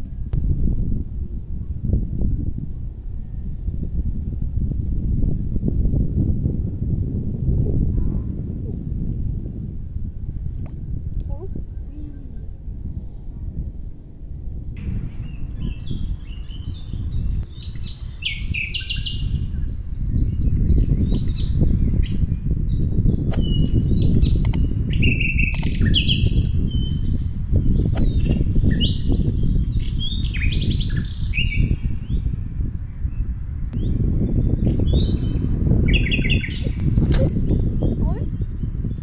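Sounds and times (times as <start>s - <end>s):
steady low rumble: 0.0s - 39.0s
small birds chirping: 14.8s - 32.3s, 33.0s - 39.0s.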